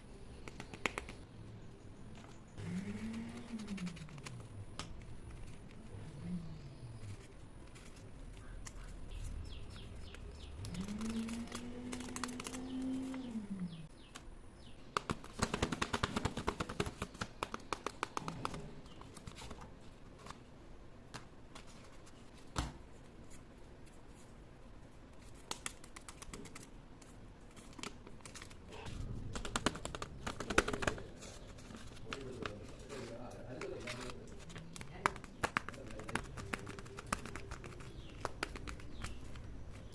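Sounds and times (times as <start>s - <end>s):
paper and tape crinkling: 7.0s - 13.3s, 25.2s - 39.9s.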